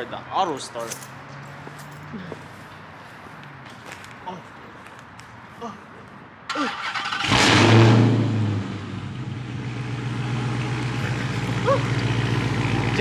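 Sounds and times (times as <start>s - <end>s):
car engine starting and idling: 6.5s - 13.0s.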